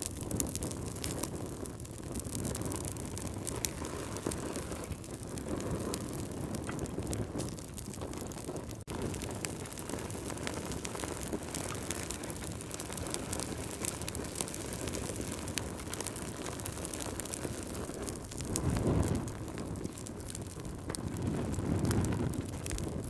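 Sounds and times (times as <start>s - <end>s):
low rumble of flames: 0.0s - 23.0s
wood fire crackling: 0.0s - 23.0s.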